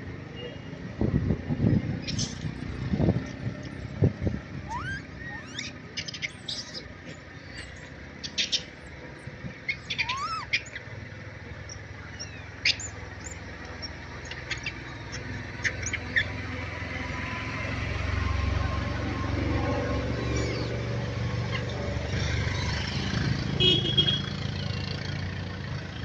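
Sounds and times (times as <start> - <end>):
birds chirping: 1.9 - 17.1, 18.2 - 24.2
whistled bird calls: 4.6 - 8.8, 9.6 - 10.9, 11.6 - 16.3, 20.2 - 20.8.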